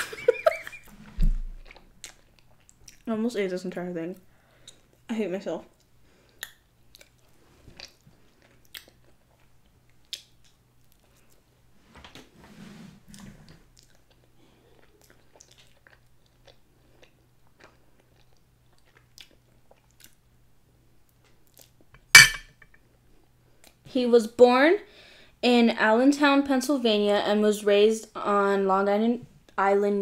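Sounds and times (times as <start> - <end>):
chewing chicken nugget: 5.8 - 11.4, 13.8 - 20.3.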